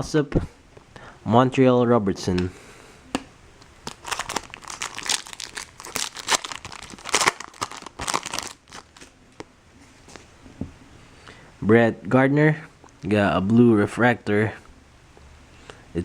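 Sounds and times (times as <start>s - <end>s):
foil wrapper crinkling and tearing: 3.8s - 9.1s.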